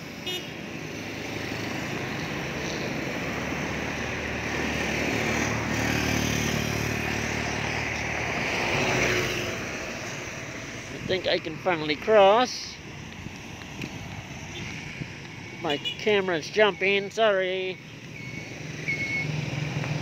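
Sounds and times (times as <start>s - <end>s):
traffic on wet pavement: 0.0s - 20.0s
vehicle passing by: 0.7s - 13.0s, 17.8s - 20.0s.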